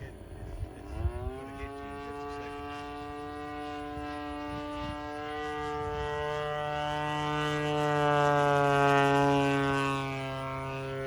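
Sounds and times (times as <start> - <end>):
model airplane engine drone: 0.0 - 11.0.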